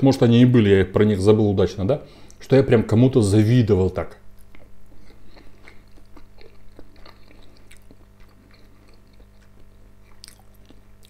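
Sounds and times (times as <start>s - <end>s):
steady low hum: 0.0s - 11.0s
man chewing food: 4.3s - 11.0s.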